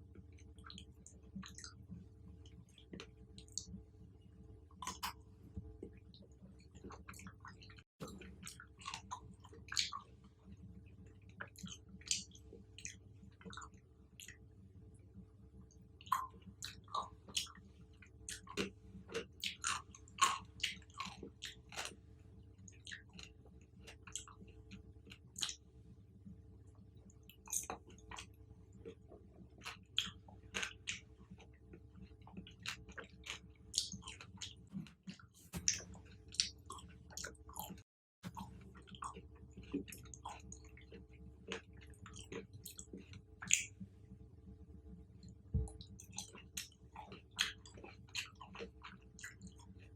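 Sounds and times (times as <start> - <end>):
chewing and biting fruit: 4.8 - 5.2, 6.7 - 14.4, 16.0 - 22.0, 22.6 - 25.6, 27.3 - 43.8, 45.6 - 49.9.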